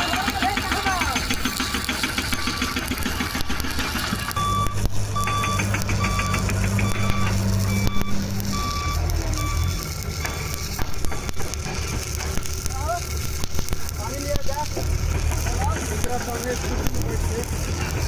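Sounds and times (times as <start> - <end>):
noisy background: 0.0 - 18.0
short electronic beeps: 2.2 - 3.0, 4.3 - 11.4.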